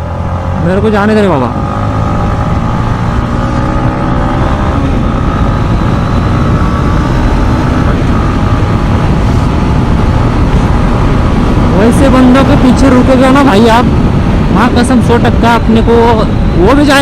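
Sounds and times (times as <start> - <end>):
motorcycle engine revving: 0.0 - 17.0
wind noise on microphone: 1.5 - 17.0.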